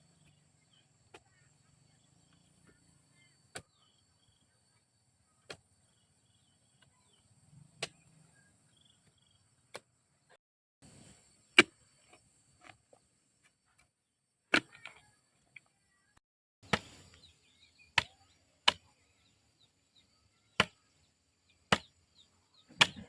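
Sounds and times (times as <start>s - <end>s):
faint insect drone: 0.0s - 10.1s, 15.0s - 22.7s
sharp chopping strikes: 16.6s - 17.1s, 18.0s - 18.9s, 20.6s - 20.8s, 21.7s - 21.9s, 22.7s - 23.0s.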